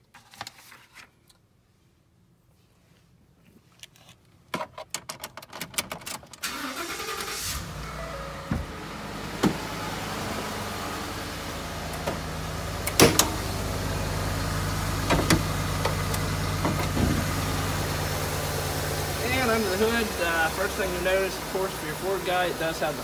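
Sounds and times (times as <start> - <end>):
engine idling: 6.4 - 23.0
sharp clicks and knocks: 12.8 - 13.4, 15.0 - 17.3.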